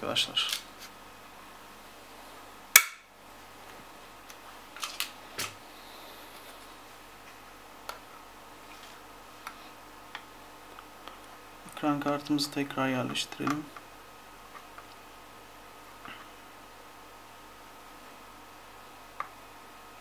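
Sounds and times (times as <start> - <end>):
sharp loud click: 2.8 - 3.0.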